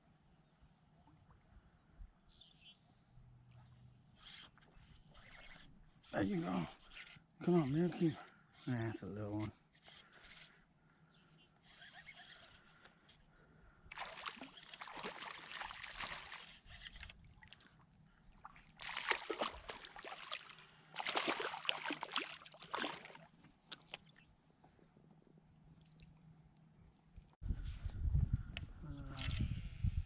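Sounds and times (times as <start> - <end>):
water splashing against kayak: 13.9 - 24.0.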